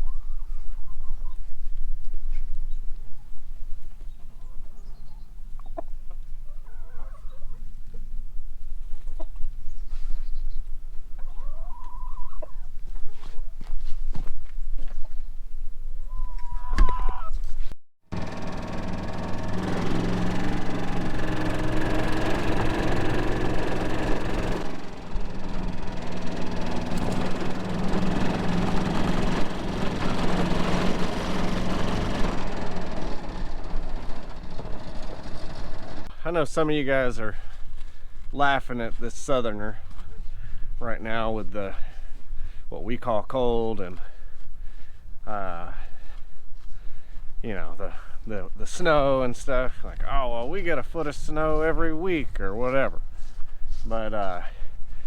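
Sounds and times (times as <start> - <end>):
chickens clucking: 4.0 - 8.1, 11.1 - 13.2, 16.2 - 17.4
hen drawn-out call: 6.5 - 7.6, 11.3 - 12.6, 16.1 - 17.4
vehicle engine running: 18.1 - 36.7.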